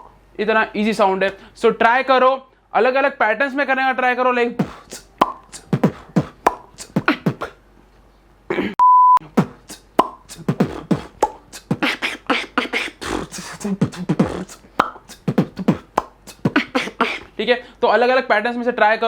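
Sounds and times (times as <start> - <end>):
beatbox mouth pops: 4.6 - 7.6, 9.2 - 17.4
short steady beep: 8.8 - 9.2.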